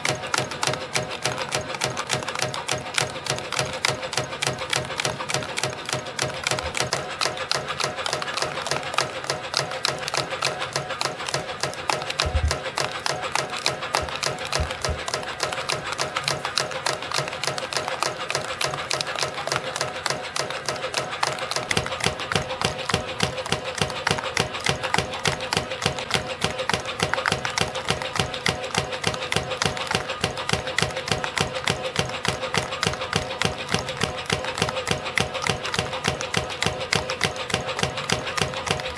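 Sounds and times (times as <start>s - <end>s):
spring coiling machine clicking: 0.0s - 38.9s
machine hum: 12.0s - 16.8s.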